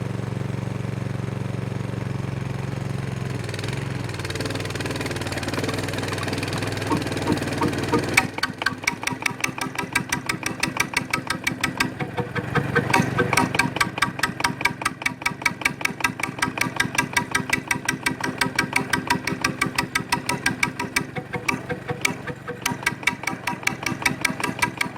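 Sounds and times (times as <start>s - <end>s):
diesel generator running: 0.0s - 24.9s
sharp evenly spaced knocks: 5.6s - 24.9s.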